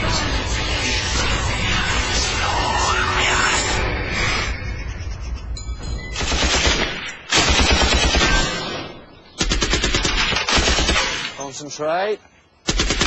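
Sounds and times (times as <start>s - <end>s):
machine gun firing bursts: 6.2s - 8.6s, 9.4s - 11.2s, 12.7s - 13.0s.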